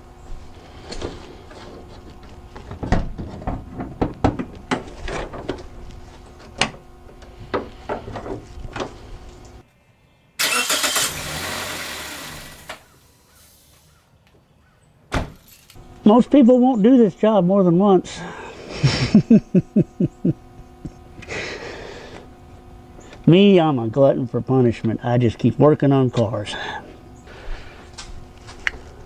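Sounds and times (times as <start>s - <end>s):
car starter clicking: 10.4s - 13.9s.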